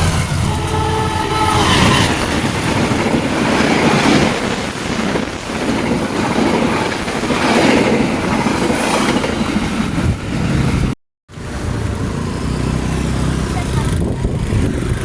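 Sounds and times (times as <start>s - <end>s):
train wheels clattering on track: 0.0s - 10.9s.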